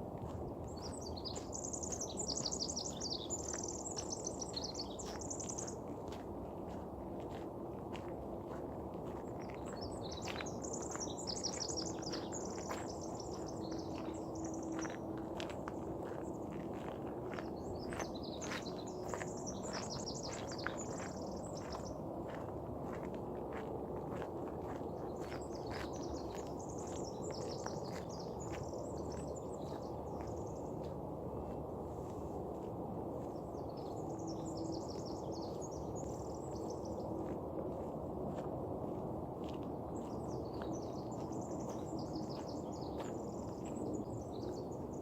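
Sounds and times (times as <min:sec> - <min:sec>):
footsteps crunching on trail: 0:00.2 - 0:45.0
songbird singing trills: 0:00.6 - 0:05.8, 0:09.2 - 0:15.1, 0:16.0 - 0:22.4, 0:25.1 - 0:30.9
songbird twittering: 0:00.8 - 0:05.8, 0:09.4 - 0:15.0.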